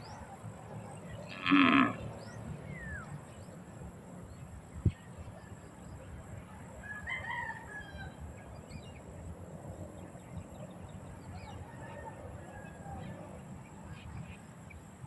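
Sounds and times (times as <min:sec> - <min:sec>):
drawn-out bird call: 0:01.0 - 0:03.0.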